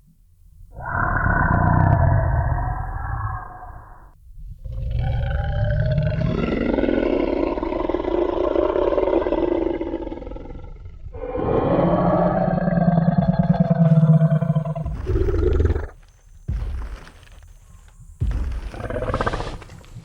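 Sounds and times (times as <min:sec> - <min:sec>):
low rumble: 0:00.3 - 0:05.5
deep dinosaur roar: 0:00.7 - 0:16.0, 0:18.7 - 0:19.6.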